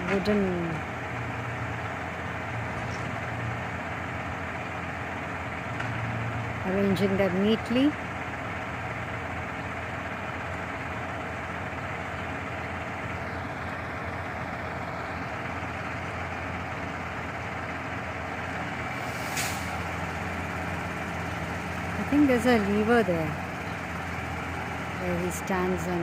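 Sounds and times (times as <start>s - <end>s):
truck engine idling: 0.0s - 26.0s
sharp air hiss: 19.0s - 19.8s.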